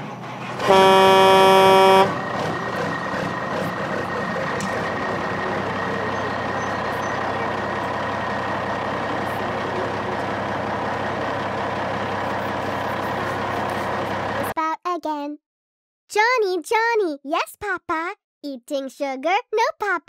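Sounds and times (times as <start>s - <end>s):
truck engine running: 0.0s - 14.6s.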